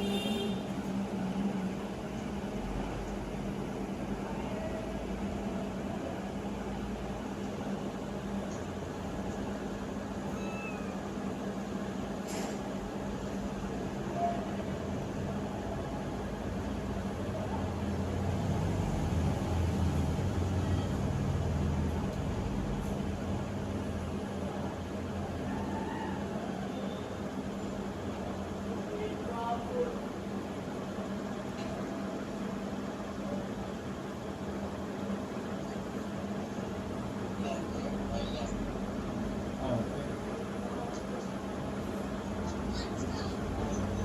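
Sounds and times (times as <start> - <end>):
kittens mewing: 10.2 - 11.1.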